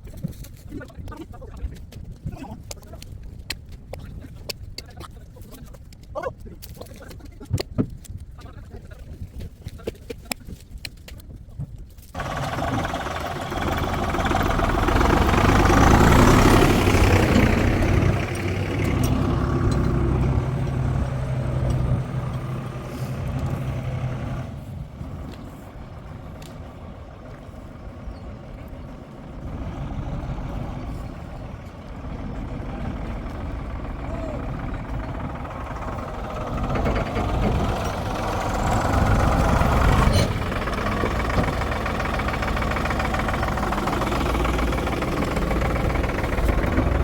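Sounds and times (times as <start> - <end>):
heavy engine running: 12.2 - 47.0.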